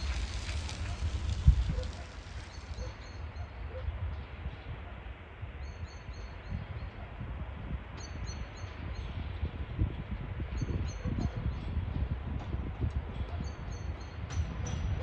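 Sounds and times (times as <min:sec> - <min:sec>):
low outdoor rumble: 0:00.0 - 0:02.9.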